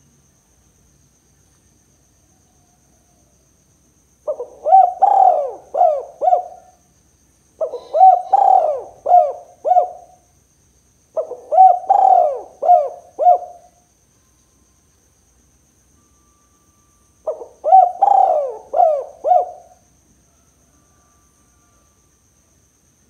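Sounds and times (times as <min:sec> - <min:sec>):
dove cooing: 0:04.3 - 0:06.8, 0:07.6 - 0:10.2, 0:11.2 - 0:13.8, 0:17.3 - 0:19.8.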